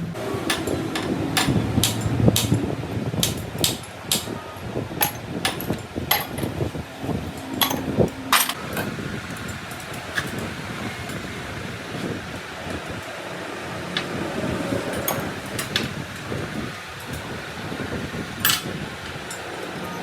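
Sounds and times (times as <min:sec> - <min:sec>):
steady low hum: 0:00.0 - 0:16.7
hammer blows: 0:00.2 - 0:11.4.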